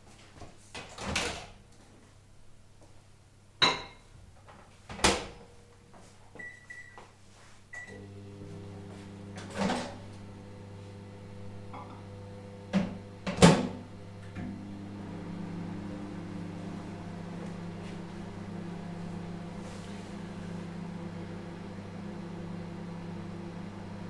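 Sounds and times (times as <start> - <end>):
microwave oven humming: 7.8 - 24.0.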